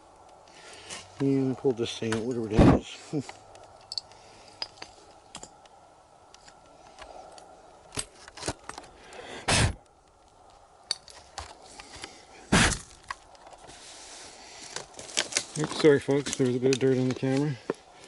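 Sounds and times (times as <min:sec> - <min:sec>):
dirt and debris clinking: 0:00.5 - 0:05.6, 0:10.5 - 0:17.9.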